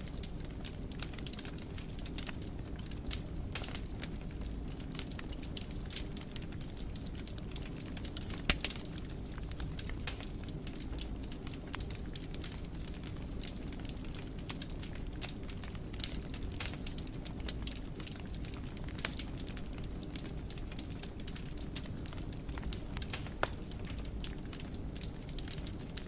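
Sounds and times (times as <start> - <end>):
fire snaps and pops: 0.0 - 26.0
low rumble of flames: 0.0 - 26.0
wood fire crackling: 0.0 - 26.0.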